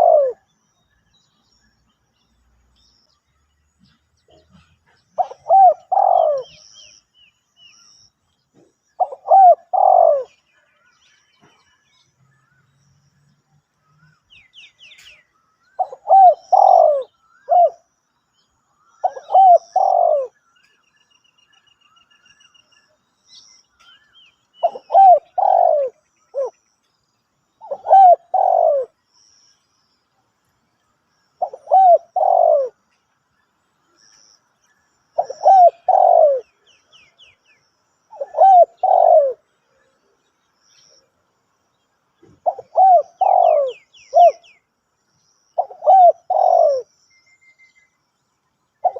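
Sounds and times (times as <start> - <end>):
dove cooing: 0.0 - 0.5, 4.2 - 6.9, 8.6 - 10.4, 15.8 - 17.9, 19.0 - 20.4, 24.6 - 26.6, 27.6 - 29.0, 31.4 - 32.8, 35.2 - 37.3, 38.1 - 40.1, 42.2 - 44.6, 45.6 - 46.9
small birds chirping: 0.0 - 48.9.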